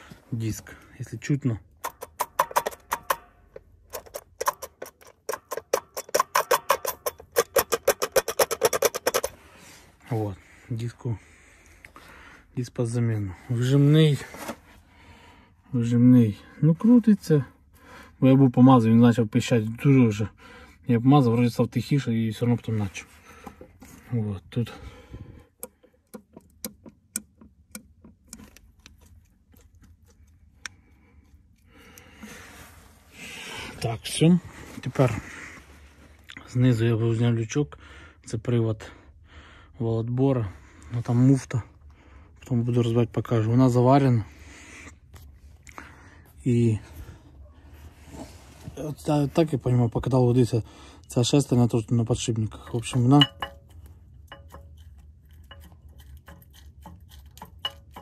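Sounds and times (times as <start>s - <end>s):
sharp metallic clicks: 1.7s - 9.4s.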